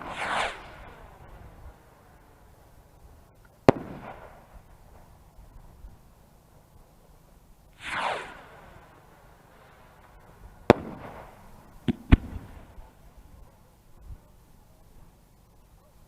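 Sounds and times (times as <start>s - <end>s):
firework bang: 0.0s - 1.5s, 3.7s - 5.1s, 7.8s - 8.8s, 10.1s - 13.0s
firework rushing falling in pitch: 0.0s - 1.8s, 7.8s - 13.1s.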